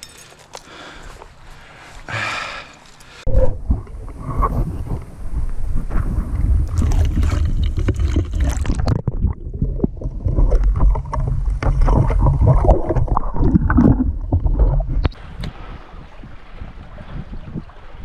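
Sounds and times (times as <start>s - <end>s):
wind buffeting microphone: 3.3s - 8.3s, 9.0s - 18.0s.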